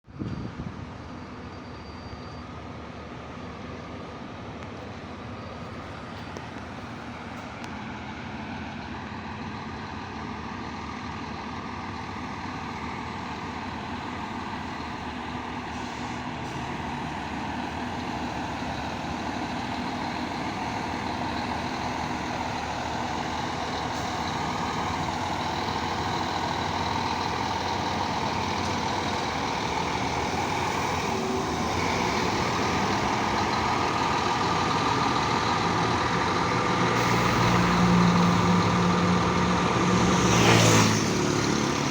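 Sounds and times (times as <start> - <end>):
diesel coach engine running: 0.1 - 41.9.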